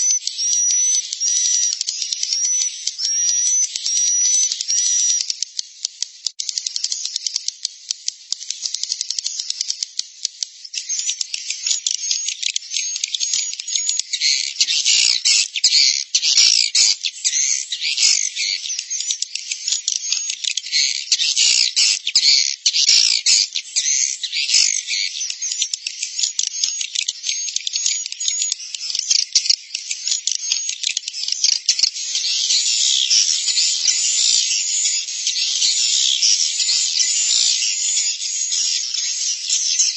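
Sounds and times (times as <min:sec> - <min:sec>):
swiftlet chattering twitters and clicks: 0:04.3 - 0:15.8.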